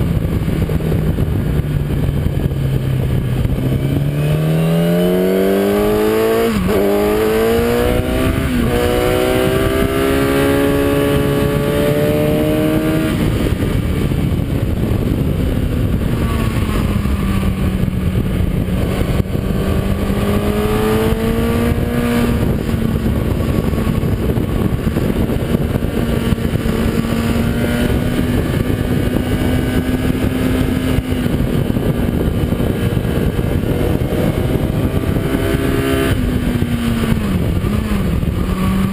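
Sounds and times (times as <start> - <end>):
motorcycle engine at full throttle: 0.0 - 38.9
wind rush: 0.0 - 38.9.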